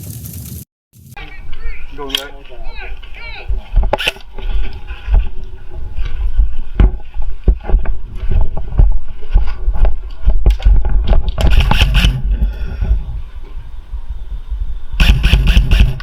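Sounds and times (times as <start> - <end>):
rustling movement noise on camera: 0.0 - 11.6.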